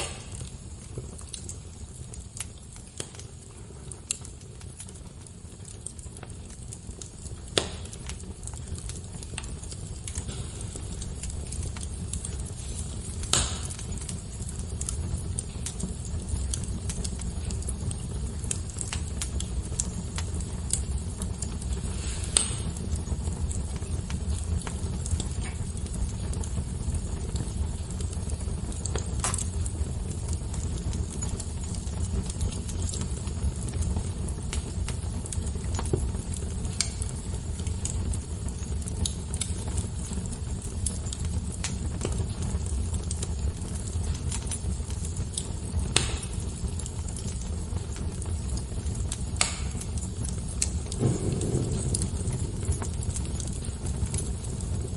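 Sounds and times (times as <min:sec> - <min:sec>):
fire crackling and popping: 0:00.0 - 0:54.9
low rumble: 0:50.9 - 0:54.6.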